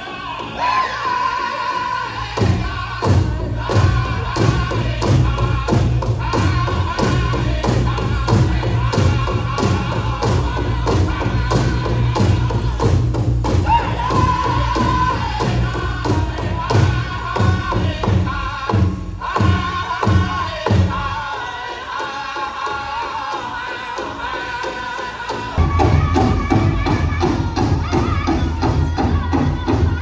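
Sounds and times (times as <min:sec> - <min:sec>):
group singing: 0:00.0 - 0:30.0
large hand drum beat: 0:02.2 - 0:21.2, 0:25.2 - 0:30.0.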